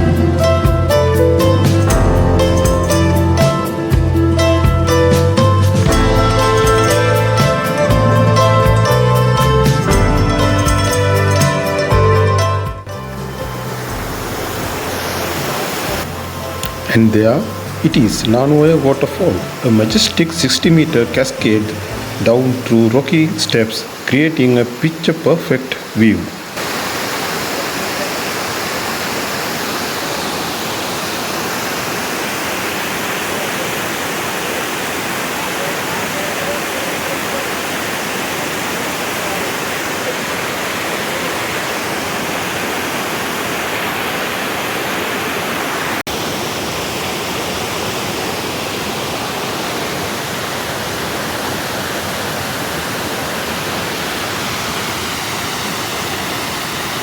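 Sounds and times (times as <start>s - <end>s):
waterfall roaring: 12.9s - 57.0s.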